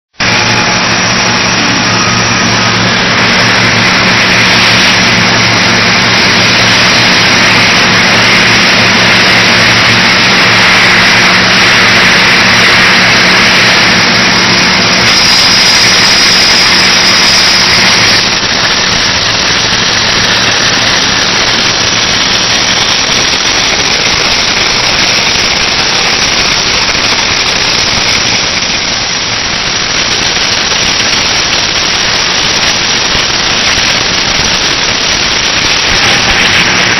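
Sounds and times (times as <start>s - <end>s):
welding machine electrical hum: 0.2s - 36.9s.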